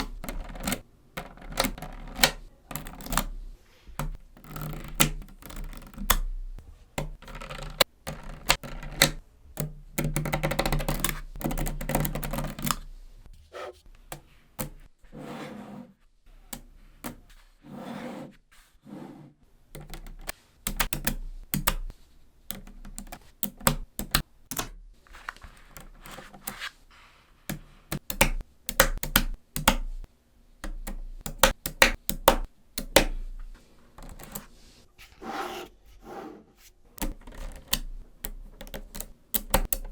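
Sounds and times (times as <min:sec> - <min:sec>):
magnetic balls clicking together: 0:00.0 - 0:13.0, 0:19.7 - 0:24.8, 0:27.5 - 0:34.5, 0:37.0 - 0:39.9.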